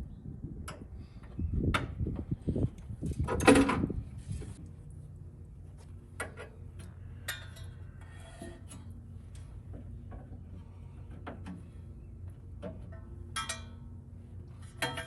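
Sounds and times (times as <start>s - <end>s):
metal tools clinking: 12.9s - 13.8s.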